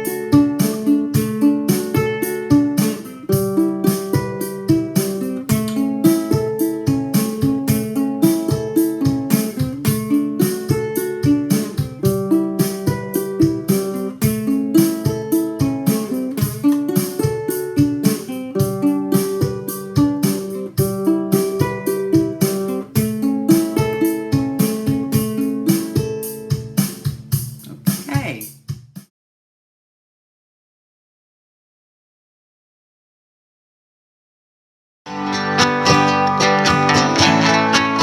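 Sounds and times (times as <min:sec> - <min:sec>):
ukulele fingerpicked arpeggios: 0:00.0 - 0:27.8, 0:35.1 - 0:38.0
drum machine beat: 0:00.0 - 0:29.1.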